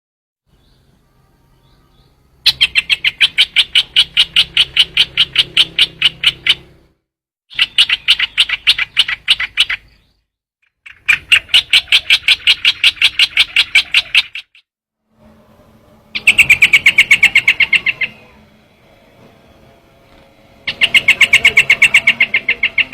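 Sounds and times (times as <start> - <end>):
bird call of rapid sharp notes: 1.9 - 6.8, 7.5 - 14.6, 16.2 - 18.4, 20.6 - 22.9.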